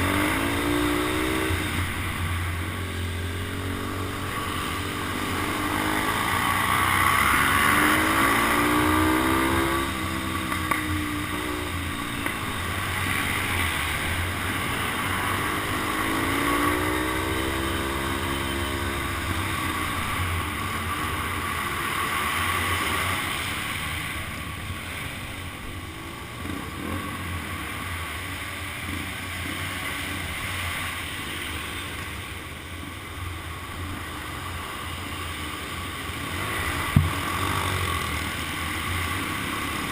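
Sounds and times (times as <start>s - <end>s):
motorcycle engine revving: 0.0s - 31.9s, 33.4s - 39.9s.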